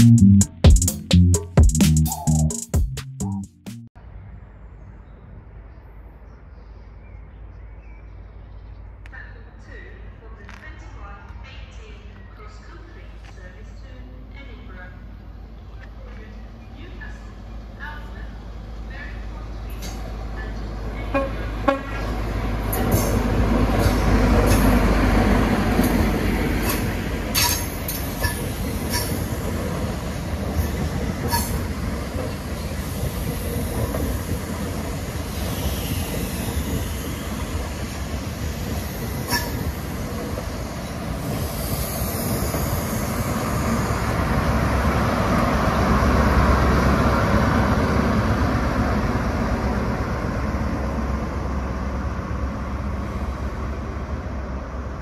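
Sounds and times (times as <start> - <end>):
train engine and wheel rumble: 4.0 - 55.0
wheels clicking over rail joints: 21.9 - 35.2.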